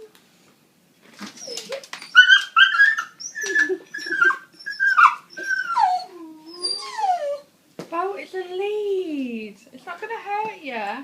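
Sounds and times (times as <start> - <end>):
dog whining: 1.2 - 7.5.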